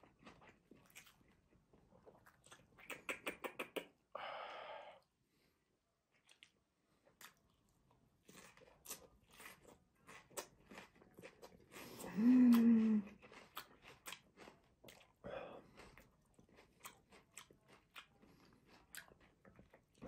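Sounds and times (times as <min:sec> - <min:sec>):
wet crunchy chewing: 0:08.2 - 0:20.0
person humming mmm: 0:12.0 - 0:13.2.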